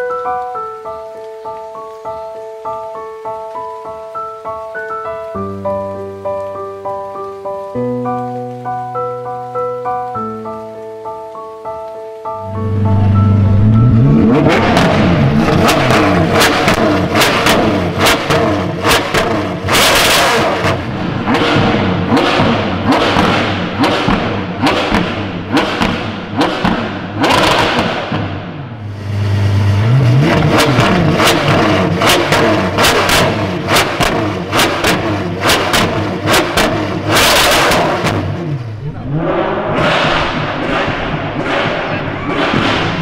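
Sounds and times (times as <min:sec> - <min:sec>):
car engine revving: 0:12.4 - 0:43.0
exhaust cracks: 0:12.4 - 0:43.0.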